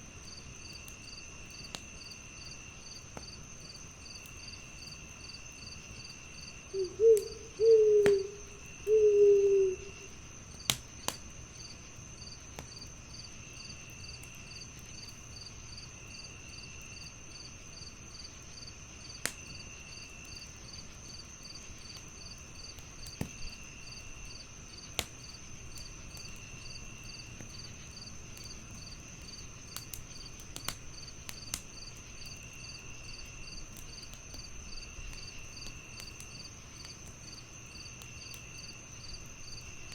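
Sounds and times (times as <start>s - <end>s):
crickets chirping: 0.0s - 39.9s
fireplace crackling: 0.1s - 16.0s, 20.1s - 39.9s
owl hooting: 6.7s - 10.1s.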